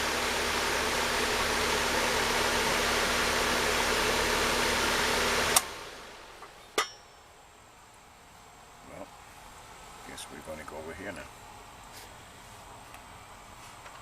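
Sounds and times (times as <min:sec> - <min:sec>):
air conditioner running: 0:00.0 - 0:14.0
faint electrical hum: 0:05.5 - 0:14.0.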